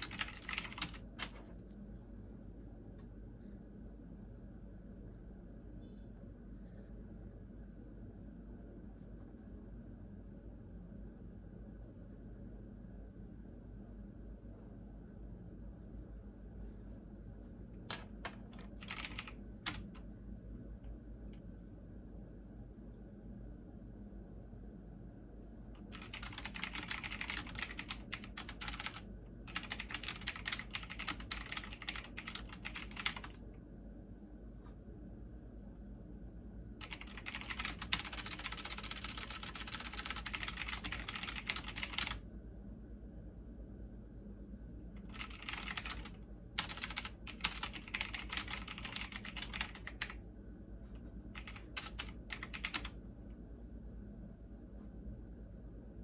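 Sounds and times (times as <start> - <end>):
computer keyboard typing: 0.0 - 1.5, 17.9 - 20.0, 25.8 - 33.4, 36.8 - 42.2, 45.0 - 50.2, 51.4 - 53.0
faint low hum: 0.0 - 56.0.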